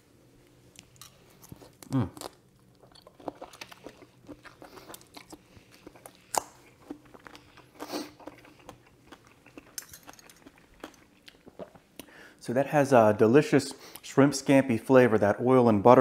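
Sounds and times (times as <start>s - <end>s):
person chewing food: 0.7s - 12.2s.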